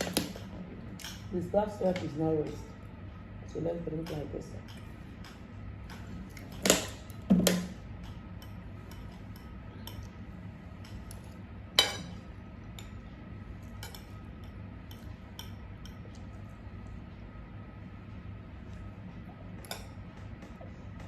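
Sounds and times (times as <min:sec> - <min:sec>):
cutlery clinking on dishes: 0:04.0 - 0:10.2, 0:10.8 - 0:13.0, 0:13.6 - 0:16.2, 0:19.6 - 0:20.0.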